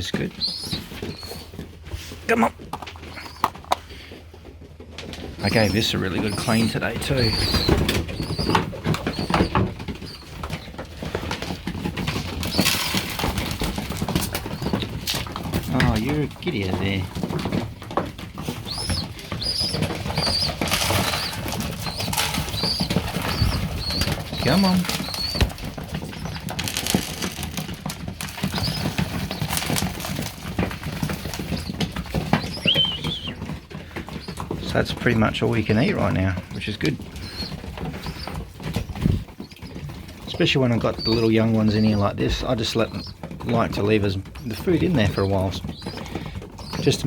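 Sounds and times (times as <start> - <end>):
high bird peeps: 0.0 - 1.6, 3.0 - 3.6, 5.4 - 10.8, 12.1 - 16.2, 18.4 - 34.4, 37.1 - 39.9, 40.8 - 42.0, 42.6 - 43.2, 44.4 - 47.0
pigeons pecking and shuffling: 0.0 - 47.0.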